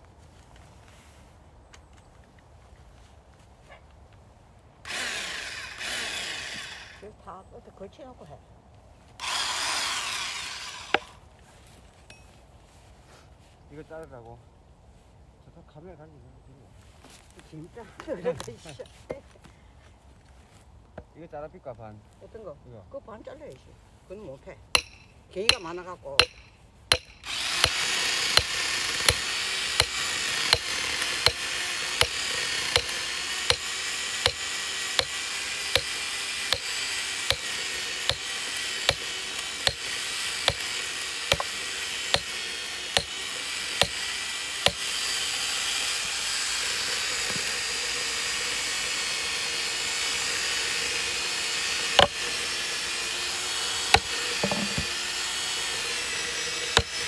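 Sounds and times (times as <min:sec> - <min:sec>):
power saw cutting wood: 0:04.9 - 0:07.0, 0:09.2 - 0:11.2, 0:24.8 - 0:57.0.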